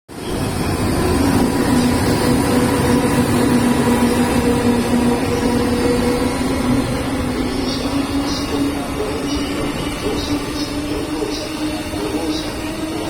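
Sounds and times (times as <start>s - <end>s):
train rumbling: 0.1s - 13.0s.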